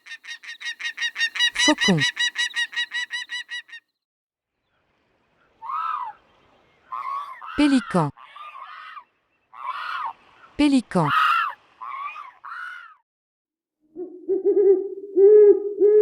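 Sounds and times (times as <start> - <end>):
bird harsh calls: 0.0 - 3.8, 5.6 - 10.2, 11.1 - 13.0
falcon calling rapidly: 0.0 - 3.8, 11.1 - 12.9.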